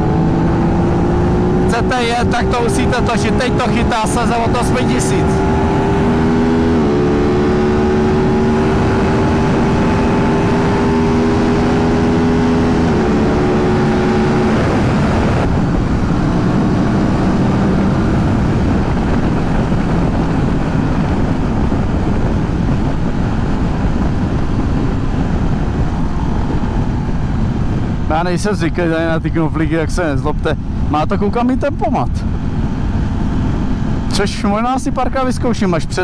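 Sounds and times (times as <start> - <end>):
motorcycle engine accelerating: 0.0 - 29.2, 31.6 - 34.8
wind noise: 0.0 - 36.0.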